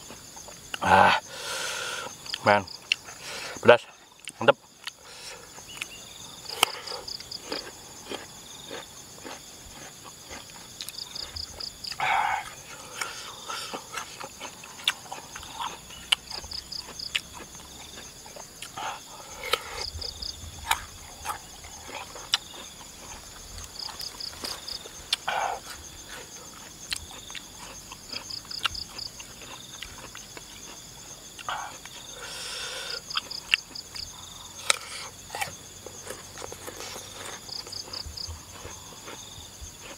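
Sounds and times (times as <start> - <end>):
crunchy chewing: 0.0 - 39.9
insects chirping: 0.0 - 39.9.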